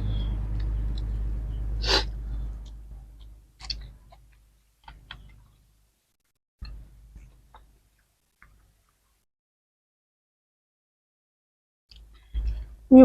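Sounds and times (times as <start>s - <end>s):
sharp breath-like hiss: 1.8s - 2.1s
eating clicks and smacks: 2.6s - 5.6s.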